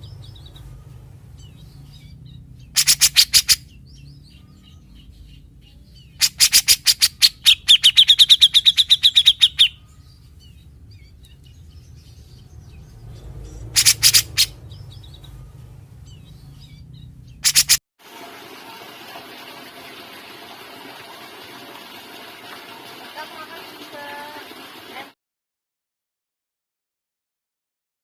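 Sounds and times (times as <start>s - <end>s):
bird harsh rasping notes: 0.0s - 5.2s, 11.6s - 17.8s.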